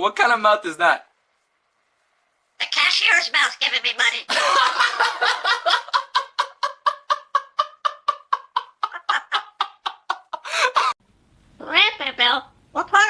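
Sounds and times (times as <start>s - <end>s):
rapid cackling laugh: 4.3s - 11.0s.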